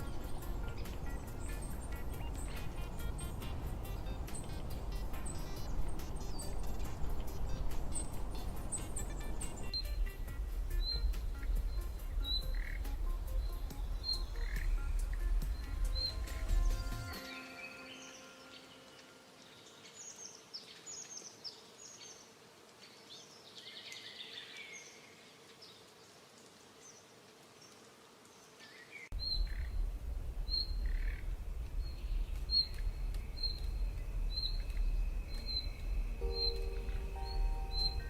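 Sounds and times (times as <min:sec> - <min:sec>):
steady low rumble: 0:00.0 - 0:16.8, 0:29.1 - 0:38.0
wild birds calling: 0:00.0 - 0:21.7, 0:28.7 - 0:38.0
bird repeating high chirp: 0:32.4 - 0:38.0.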